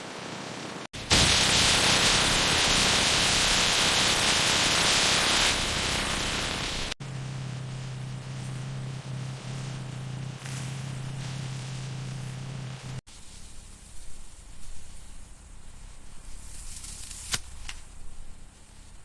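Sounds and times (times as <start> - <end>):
loud steady hiss: 0.0 - 19.0
low machine hum: 7.0 - 13.0.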